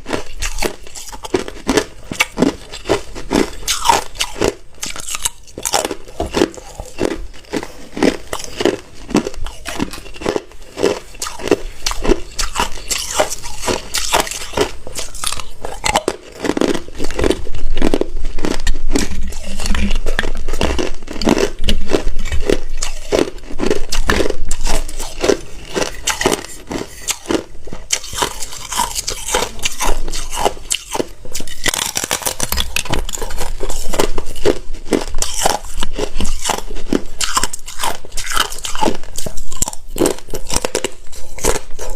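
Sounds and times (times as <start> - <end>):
person chewing hard ice: 0.0 - 41.9.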